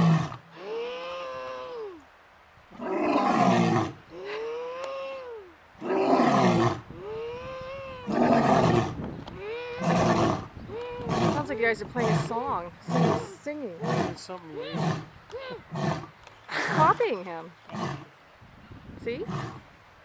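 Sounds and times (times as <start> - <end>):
boy calling out ooo: 0.6 - 2.0, 4.1 - 5.6, 7.0 - 8.6, 9.4 - 10.1, 14.5 - 15.7
lion roaring: 5.8 - 9.0, 9.8 - 15.1.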